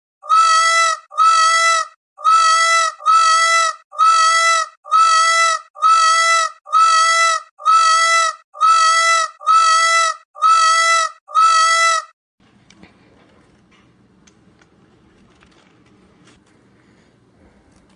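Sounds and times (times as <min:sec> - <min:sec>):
animal cry: 0:00.2 - 0:12.1.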